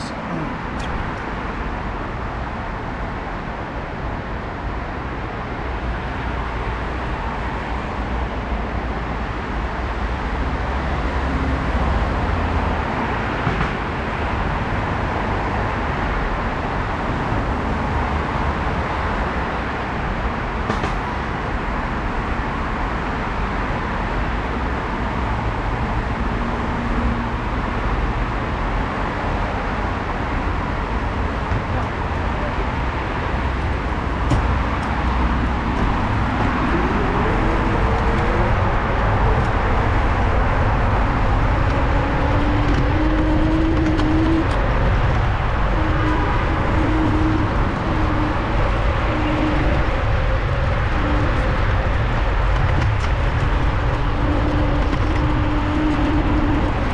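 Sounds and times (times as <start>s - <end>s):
street traffic: 0.0s - 56.9s
wind rumble on microphone: 0.0s - 56.9s
bicycle riding noise: 29.9s - 56.9s.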